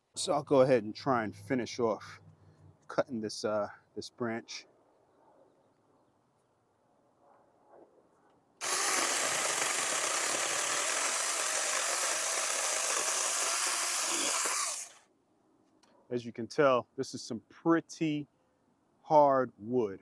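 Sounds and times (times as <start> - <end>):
electric chainsaw cutting branch: 8.6 - 15.0.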